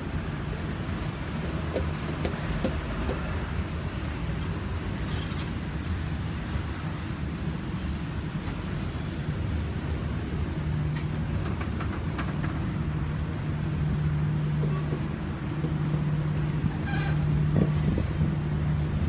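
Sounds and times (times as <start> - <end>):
train engine drone: 0.0 - 19.0
wheels clicking on rails: 0.9 - 3.6.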